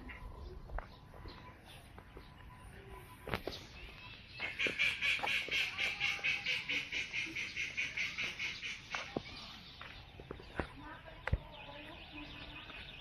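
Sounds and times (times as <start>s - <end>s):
animal calling rapidly: 4.5s - 8.9s.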